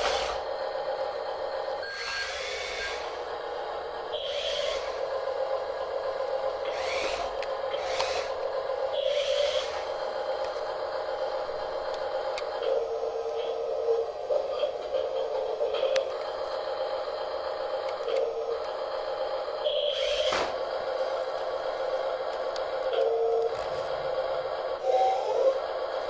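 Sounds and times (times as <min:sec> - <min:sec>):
electric motors whining: 0:00.0 - 0:26.0.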